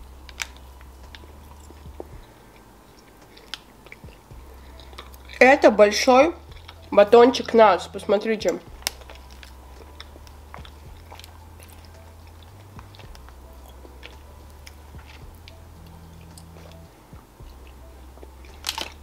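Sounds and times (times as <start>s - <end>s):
low steady hum: 0.0s - 19.0s
chewing chocolate bar: 0.3s - 5.4s, 6.4s - 7.7s, 8.5s - 16.8s.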